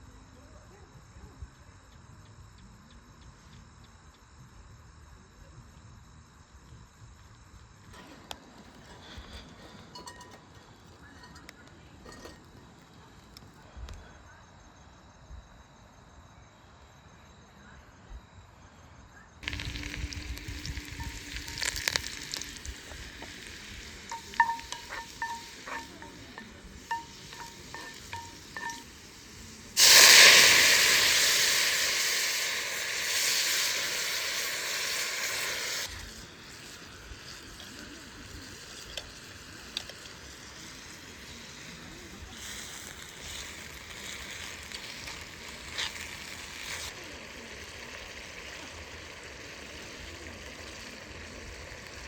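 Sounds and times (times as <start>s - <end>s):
metal utensil clinking on pan: 9.9s - 10.4s, 19.5s - 30.0s
food sizzling in hot oil: 19.4s - 52.0s.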